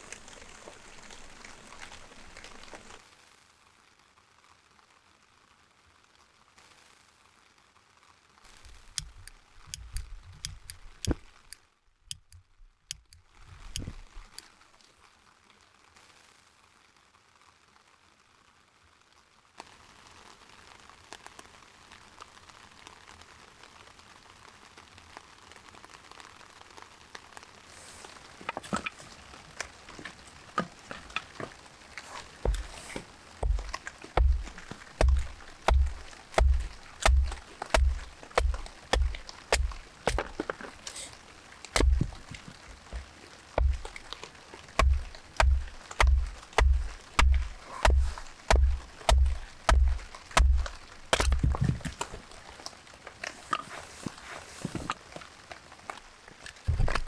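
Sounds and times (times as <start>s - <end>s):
light rain: 0.0s - 57.0s
dull knocks with clicks: 8.5s - 11.2s, 12.1s - 14.0s, 32.1s - 41.1s, 41.8s - 43.0s, 43.6s - 44.2s, 44.8s - 52.1s.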